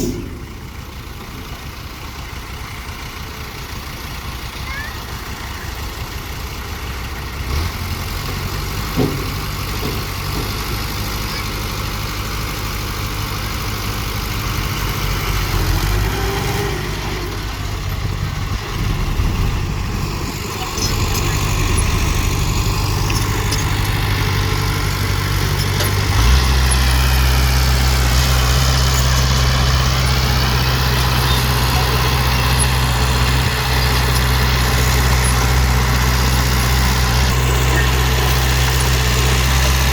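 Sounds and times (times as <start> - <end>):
dump truck diesel engine running: 0.0 - 39.9.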